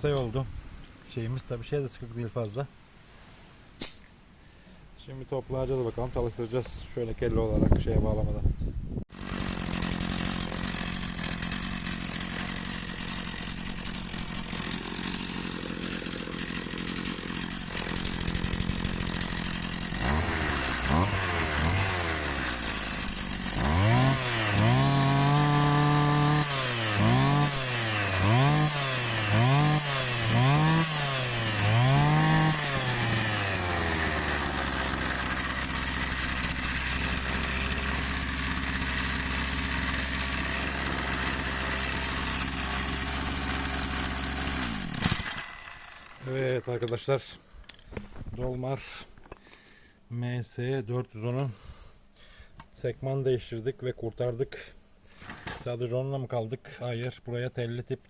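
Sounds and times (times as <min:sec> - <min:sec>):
two-stroke engine revving and idling: 0:09.1 - 0:46.4.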